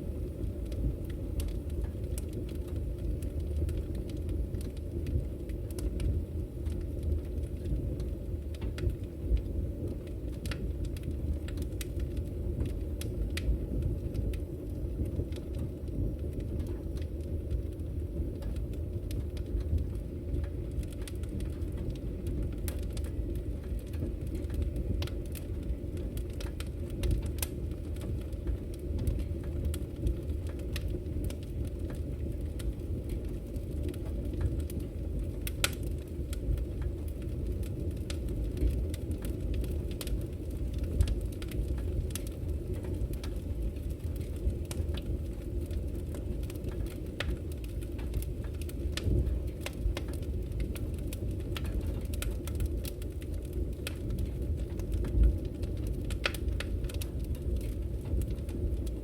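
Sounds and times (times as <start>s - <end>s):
flames rumbling: 0.0s - 59.0s
wood crackling and popping: 0.0s - 59.0s.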